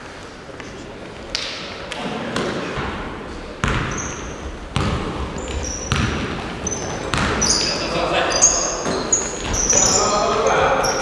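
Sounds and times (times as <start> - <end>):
voices echoing in hall: 0.0 - 11.0
basketballs bouncing on wooden floor: 2.4 - 11.0
sneaker squeak: 3.6 - 11.0.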